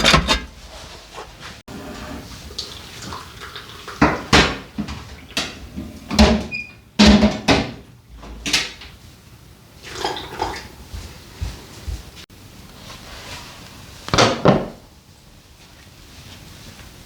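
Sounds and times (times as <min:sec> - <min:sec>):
cookware knocking and clattering: 0:00.0 - 0:00.6.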